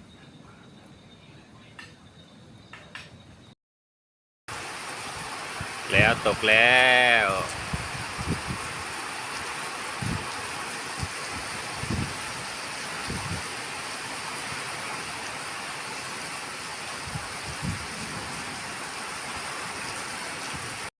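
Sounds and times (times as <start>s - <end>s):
heavy rain pouring: 4.5s - 20.9s.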